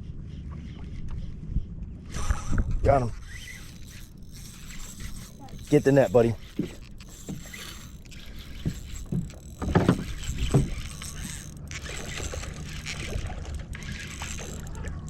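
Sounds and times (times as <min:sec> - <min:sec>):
water and wind noise: 0:00.0 - 0:15.0
knocks and splashes: 0:08.6 - 0:11.2.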